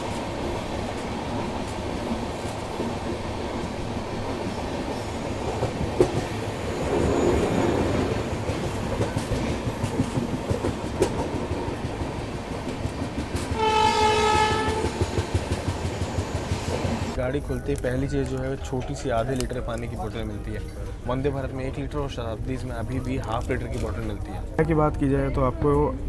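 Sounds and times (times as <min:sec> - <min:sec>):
train wheels rumbling on rail: 0:00.0 - 0:17.2
train horn blast: 0:13.5 - 0:15.0.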